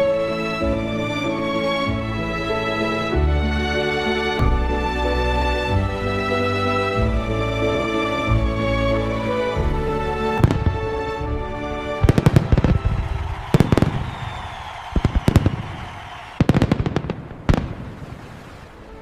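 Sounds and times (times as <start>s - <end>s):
music: 0.0s - 16.2s, 18.7s - 19.0s
fireworks bangs and crackles: 10.4s - 11.0s, 12.0s - 18.7s.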